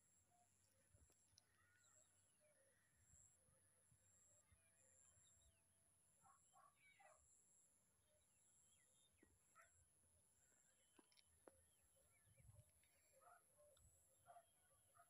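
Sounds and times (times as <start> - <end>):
faint bird calls: 0.1 - 5.6.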